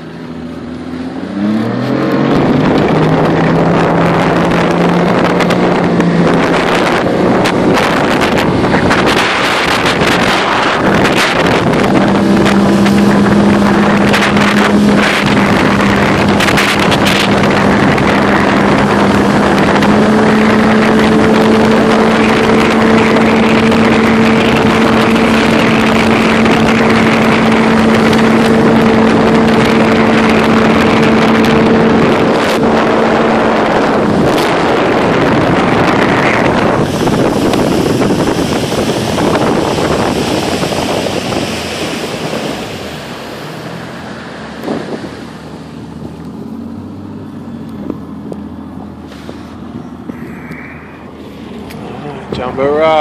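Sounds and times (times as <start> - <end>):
boat motor humming: 0.0 - 53.0
wind noise on microphone: 1.2 - 53.0.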